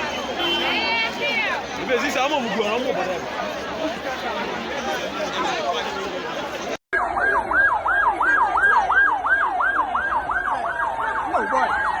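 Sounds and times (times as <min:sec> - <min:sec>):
emergency siren yelping: 0:07.0 - 0:12.0.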